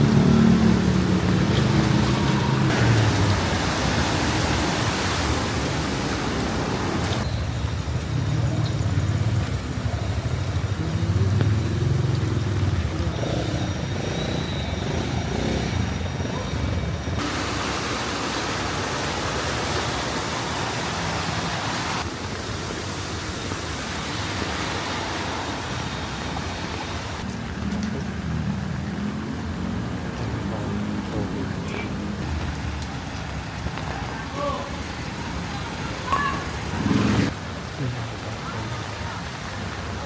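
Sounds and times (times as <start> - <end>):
hiss of rain and water: 0.0 - 40.0
vehicle engine rumbling: 5.7 - 22.2.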